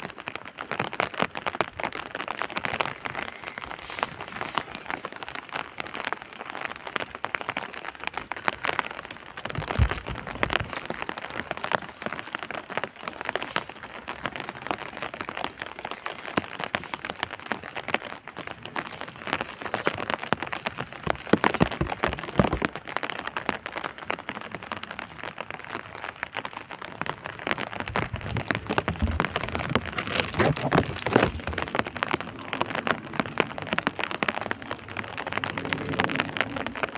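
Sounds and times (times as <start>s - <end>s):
rain pattering: 0.0s - 36.9s.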